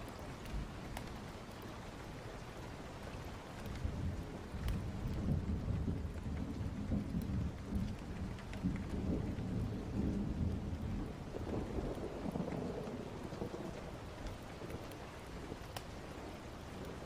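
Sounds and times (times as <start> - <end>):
steady rain: 0.0 - 17.0
thunder rumbling: 3.7 - 17.0.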